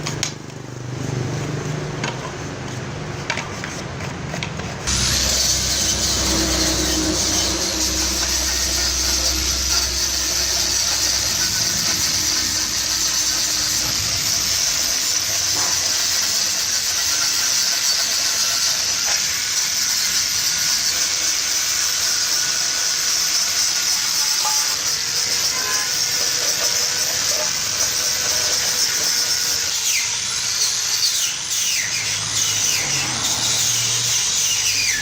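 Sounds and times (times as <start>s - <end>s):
low hum: 4.9s - 14.6s
loud steady hiss: 4.9s - 32.8s.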